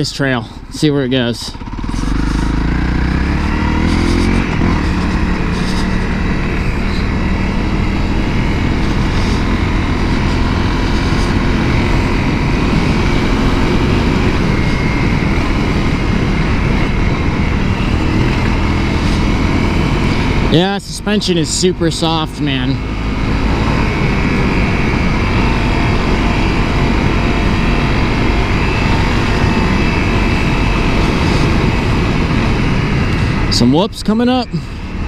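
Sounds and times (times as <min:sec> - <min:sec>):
motorcycle engine under throttle: 0:00.0 - 0:35.0.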